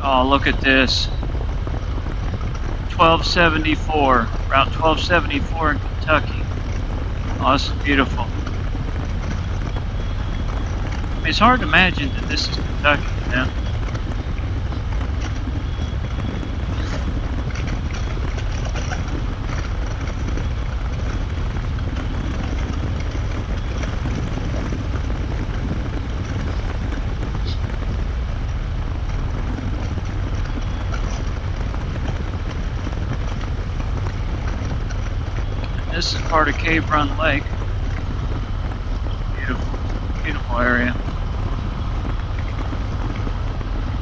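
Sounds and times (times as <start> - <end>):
motorcycle engine cruising: 0.0 - 44.0
wind rush: 0.0 - 44.0.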